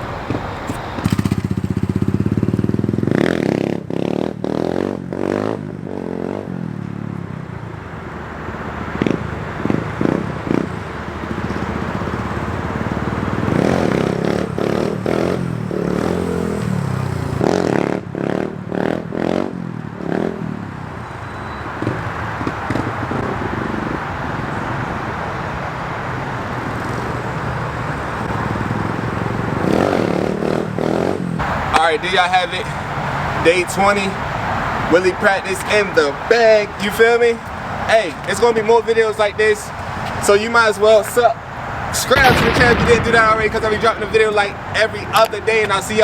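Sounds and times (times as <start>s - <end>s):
dirt bike engine revving: 0.0s - 6.6s, 8.2s - 20.4s, 26.6s - 38.7s.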